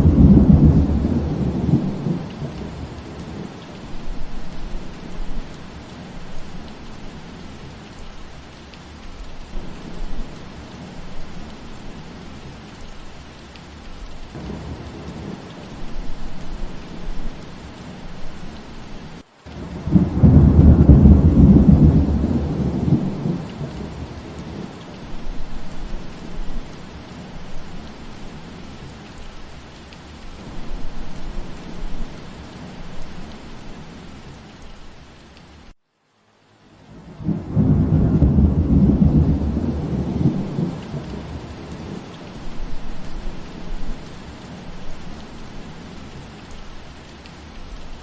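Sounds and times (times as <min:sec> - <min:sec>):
thunder rumbling: 0:00.0 - 0:06.5, 0:14.3 - 0:18.7, 0:19.6 - 0:28.6, 0:36.9 - 0:46.0
steady rain: 0:00.0 - 0:48.0.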